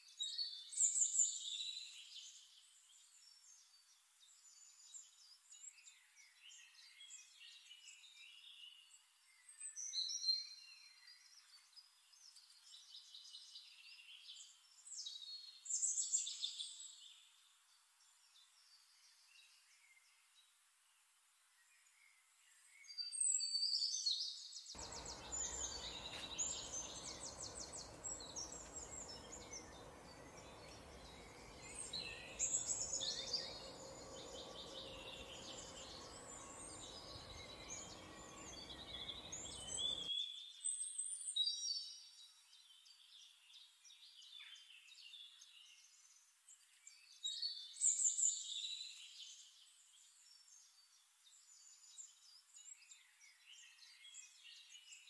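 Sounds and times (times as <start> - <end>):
small birds chirping and trilling: 21.8 - 55.0
faint low hum: 24.8 - 40.1.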